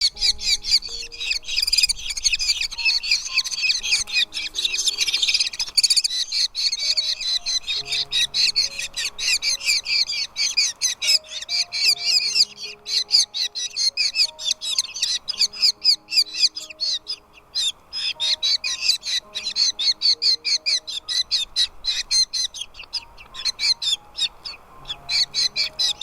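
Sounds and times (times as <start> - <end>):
nestling birds chirping: 0.0 - 26.0
soft background music: 0.0 - 26.0.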